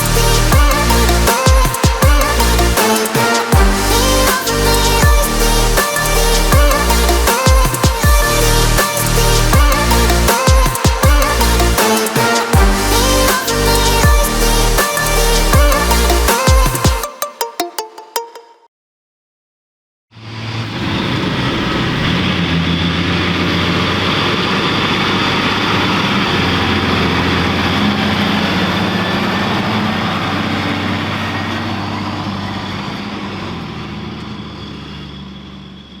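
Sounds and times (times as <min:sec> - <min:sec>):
diesel farm machinery engine humming: 0:20.7 - 0:36.0.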